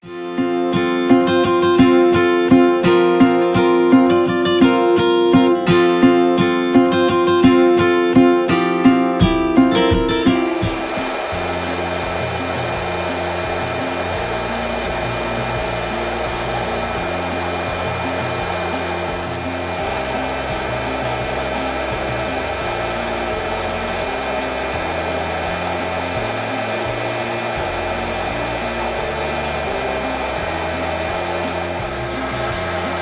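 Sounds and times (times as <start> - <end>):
background music with bass line: 0.0 - 33.0
hot-air blower whirring: 9.2 - 33.0.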